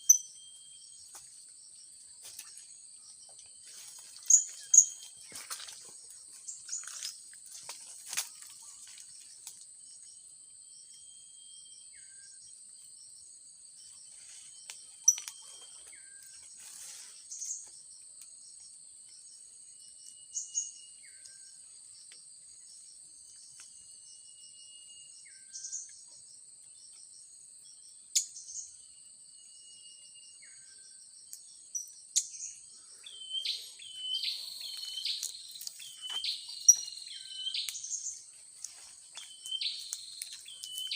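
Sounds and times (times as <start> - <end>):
sharp high bird chirps: 0.0 - 0.9, 4.2 - 5.2, 32.2 - 40.9
insects trilling: 0.0 - 40.9.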